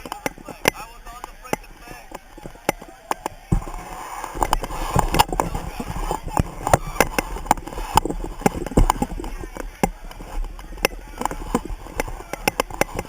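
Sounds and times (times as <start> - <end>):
crowd shouting: 0.0 - 7.4
sharp taps and knocks: 0.0 - 13.0.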